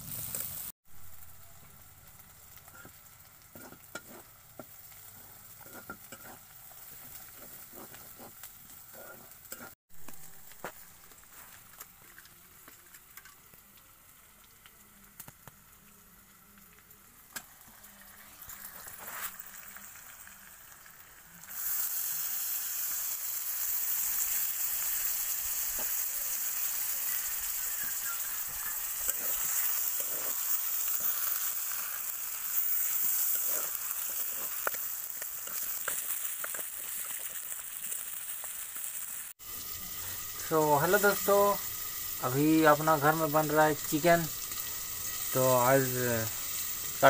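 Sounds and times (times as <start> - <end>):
meat sizzling in hot oil: 0.0 - 47.0
metal spatula scraping pan: 3.5 - 4.3, 5.1 - 9.8, 28.5 - 31.4.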